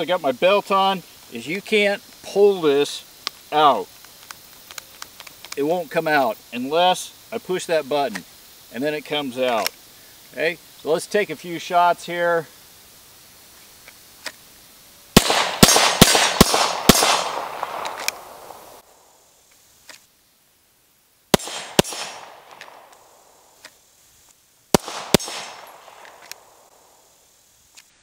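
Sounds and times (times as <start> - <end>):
pistol shots with echo: 15.2 - 18.8, 21.4 - 23.2, 24.7 - 26.7.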